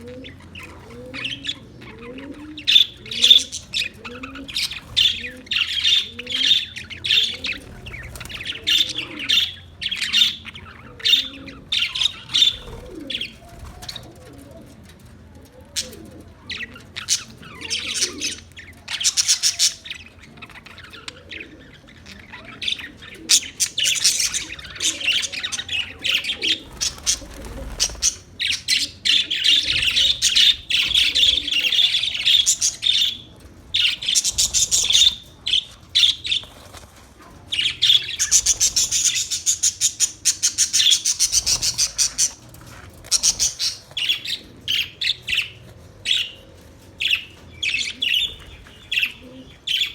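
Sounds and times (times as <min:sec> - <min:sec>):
parrots chattering and squawking: 0:00.0 - 0:14.4, 0:15.8 - 0:49.9.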